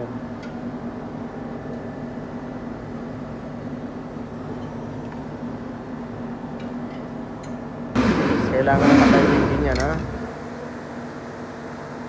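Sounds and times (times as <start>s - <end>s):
machine humming: 8.0s - 10.6s.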